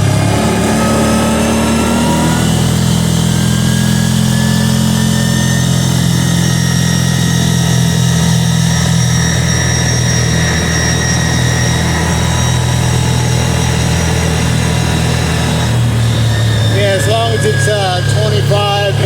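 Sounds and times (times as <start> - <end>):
atv engine running: 0.0 - 19.0.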